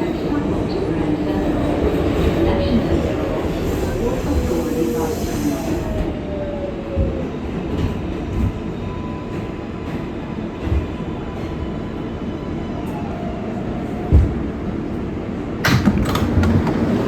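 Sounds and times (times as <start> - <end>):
subway train rumbling on track: 0.0 - 17.0.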